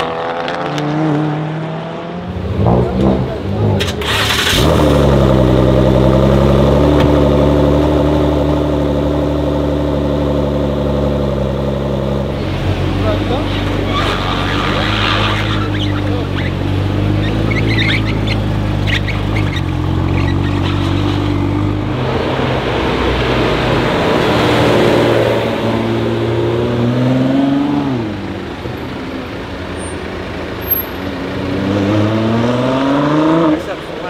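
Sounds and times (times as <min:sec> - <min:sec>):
car engine idling and accelerating: 0:00.0 - 0:34.0.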